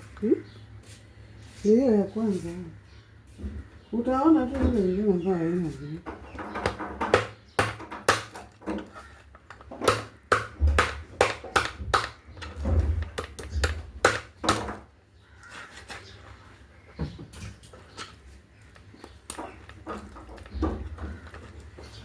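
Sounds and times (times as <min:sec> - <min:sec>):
sharp knocks and clatters: 0:06.0 - 0:14.9, 0:18.8 - 0:22.0.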